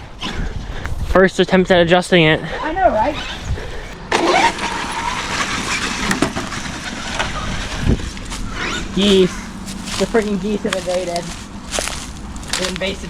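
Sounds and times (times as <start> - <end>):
electric motor whining: 2.9 - 12.6
tyres on the ground: 2.9 - 13.0.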